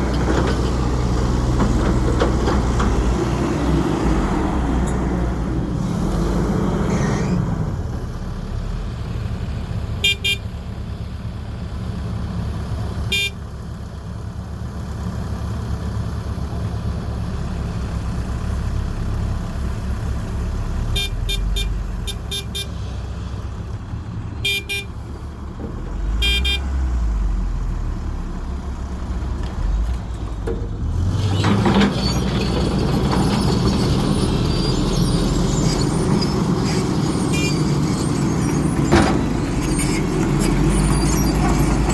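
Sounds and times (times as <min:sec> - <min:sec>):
excavator diesel engine: 0:00.0 - 0:41.9
high beeps: 0:21.0 - 0:22.7.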